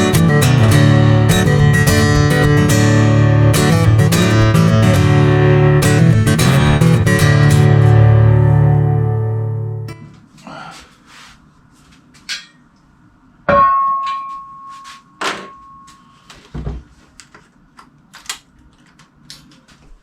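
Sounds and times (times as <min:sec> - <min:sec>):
loud ringing metallic clank: 0:13.5 - 0:16.1.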